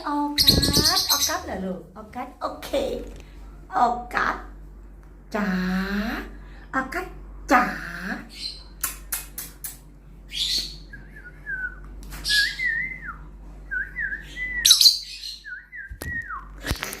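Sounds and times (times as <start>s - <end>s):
lovebirds chirping: 0.0s - 1.7s, 14.1s - 16.1s.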